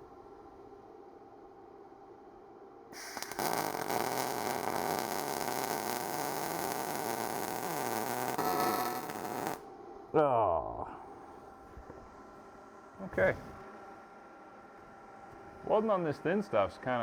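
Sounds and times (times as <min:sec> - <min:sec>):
welder crackling: 0:03.0 - 0:09.6.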